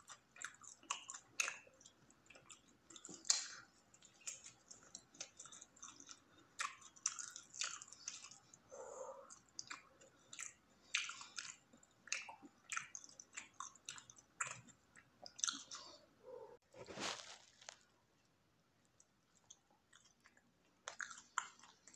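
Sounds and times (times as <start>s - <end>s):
person chewing bread: 0.0s - 18.0s, 18.8s - 21.9s.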